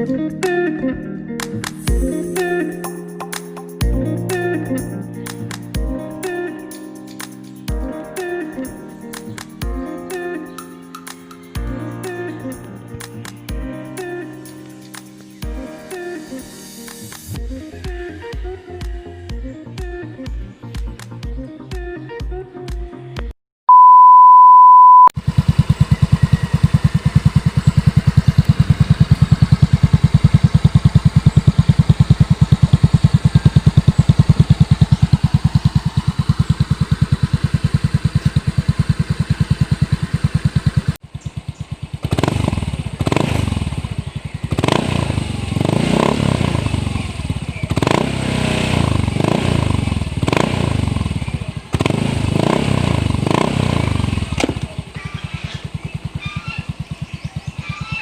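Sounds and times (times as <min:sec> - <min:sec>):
scooter engine idling and revving: 0:25.2 - 0:58.0.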